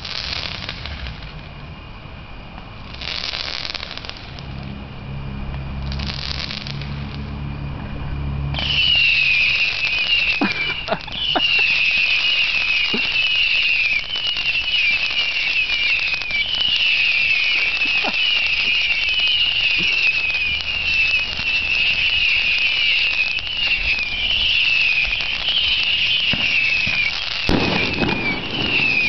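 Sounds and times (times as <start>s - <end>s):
firework burning with hiss: 0.0s - 29.0s
firework hissing whooshes: 0.0s - 29.0s
wavering high firework whistle: 0.0s - 29.0s
short falling whistles: 8.6s - 29.0s.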